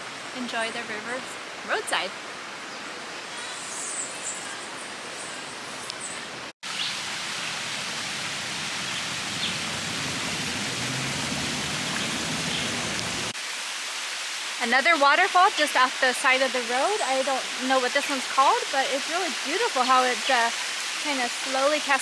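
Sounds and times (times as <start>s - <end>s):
river water flowing: 6.6s - 22.0s.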